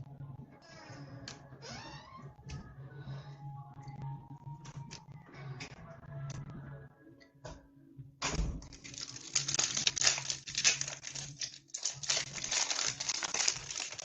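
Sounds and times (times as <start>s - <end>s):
foil wrapper crinkling and tearing: 8.6s - 14.0s.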